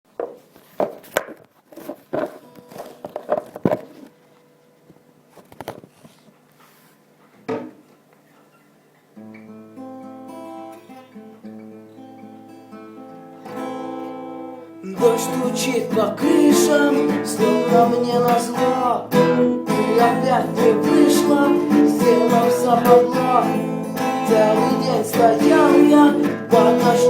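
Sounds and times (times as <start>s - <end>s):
acoustic guitar strumming chords: 9.2s - 27.0s.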